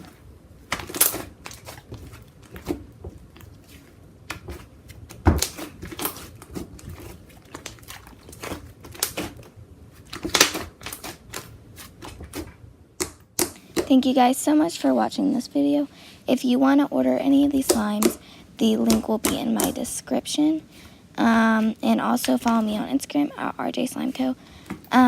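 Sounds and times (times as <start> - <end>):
slime being squished: 0.0 - 14.0, 17.4 - 19.9.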